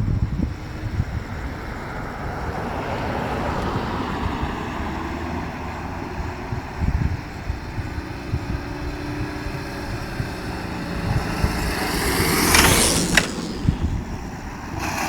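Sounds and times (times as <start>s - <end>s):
broad rushing noise: 0.0s - 15.0s
wind buffeting on microphone: 0.0s - 15.0s
motorcycle engine running: 5.5s - 15.0s.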